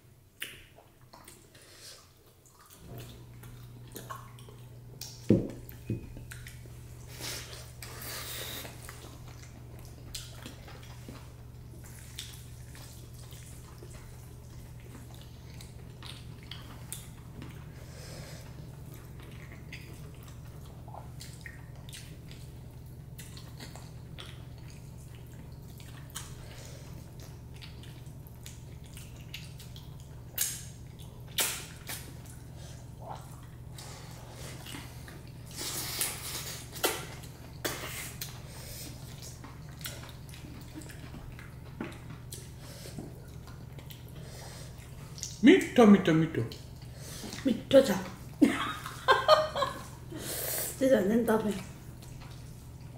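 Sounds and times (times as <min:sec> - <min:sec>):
steady low hum: 0:00.0 - 0:52.9
wet chewing: 0:00.4 - 0:17.8, 0:18.4 - 0:45.4.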